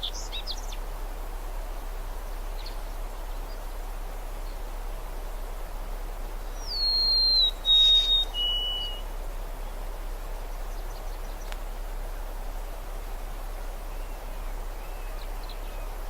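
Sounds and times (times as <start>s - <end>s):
outdoor ambience hiss: 0.0s - 16.0s
songbird whistling: 6.6s - 9.0s.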